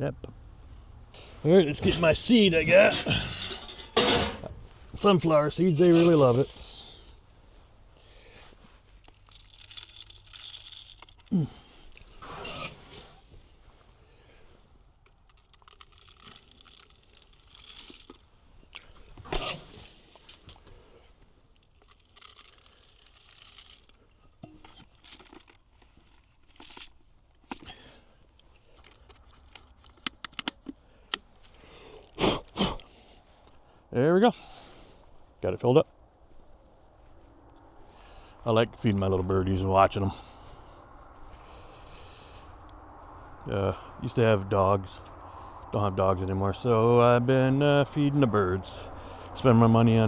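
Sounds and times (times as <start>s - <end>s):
plastic bag crinkling: 1.6s - 7.4s, 8.2s - 13.6s, 15.1s - 20.8s, 21.5s - 30.2s
sharp crackles: 4.5s - 32.2s
seeds pouring into feeder: 5.0s - 7.3s, 8.9s - 13.5s, 15.2s - 18.3s, 19.3s - 20.8s, 21.6s - 26.7s.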